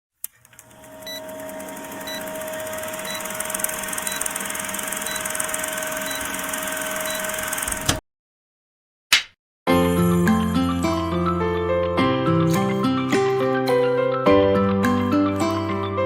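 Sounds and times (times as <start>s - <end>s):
electric dryer whirring: 0.2s - 8.0s.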